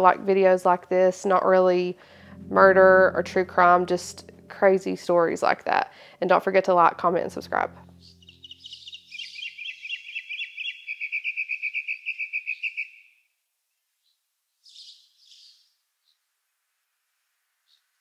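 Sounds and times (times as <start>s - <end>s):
small bird trilling: 8.0s - 13.0s.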